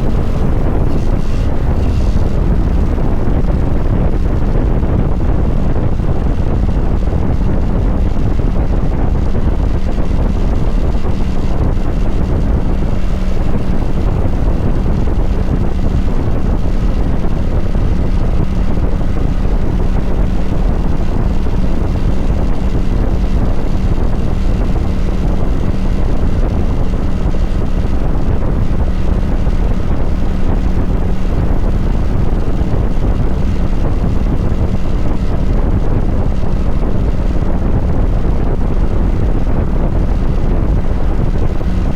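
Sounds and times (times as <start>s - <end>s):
motorcycle engine running: 0.0s - 41.9s
wind rumble on microphone: 0.0s - 41.9s.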